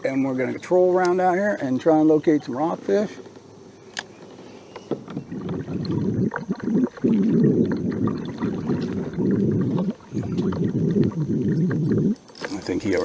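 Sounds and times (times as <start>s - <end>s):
water sloshing against kayak hull: 0.9s - 13.0s
low rumbling noise: 5.0s - 12.2s.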